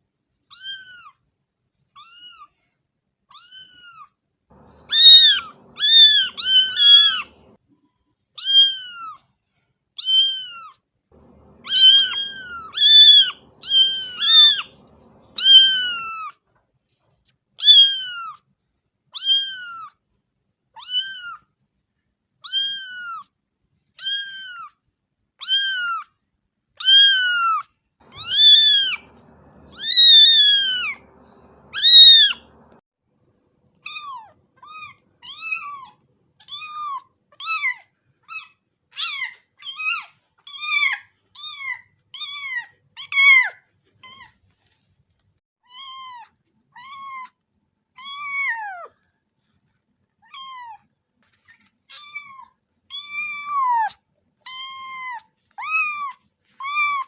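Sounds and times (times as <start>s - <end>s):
cat meowing: 0.5s - 1.2s, 2.0s - 2.5s, 3.3s - 7.6s, 8.4s - 9.2s, 10.0s - 16.4s, 20.8s - 21.4s, 26.8s - 32.8s, 33.8s - 43.5s, 48.0s - 48.9s, 51.9s - 57.0s.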